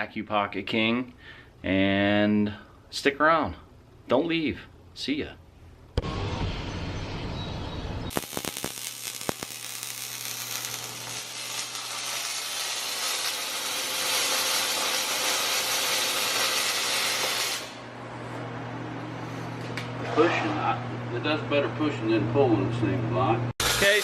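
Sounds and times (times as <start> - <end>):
welding arc pops: 8.1 - 17.8, 23.6 - 24.0
welding arc hissing crackle: 8.1 - 17.9, 23.6 - 24.0.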